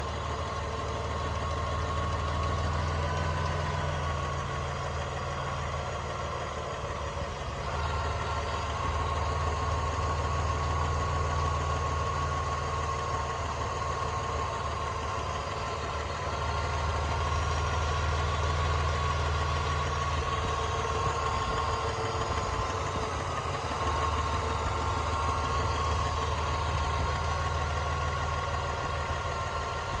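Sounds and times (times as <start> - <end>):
engine idling with light clicking: 0.0 - 30.0.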